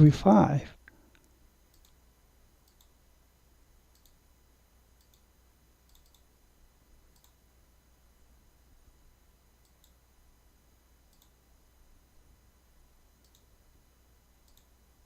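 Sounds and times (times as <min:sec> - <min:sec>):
low steady hum: 0:00.0 - 0:15.0
computer mouse clicks: 0:00.9 - 0:02.0, 0:02.6 - 0:03.0, 0:03.9 - 0:04.2, 0:05.0 - 0:05.3, 0:05.9 - 0:06.3, 0:07.1 - 0:07.4, 0:09.6 - 0:10.0, 0:11.1 - 0:11.4, 0:13.2 - 0:13.5, 0:14.4 - 0:14.7.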